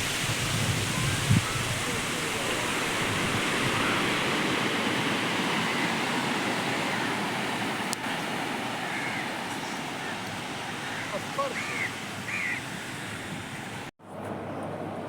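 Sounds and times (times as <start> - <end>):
ocean surf washing onto beach: 0.0 - 15.0.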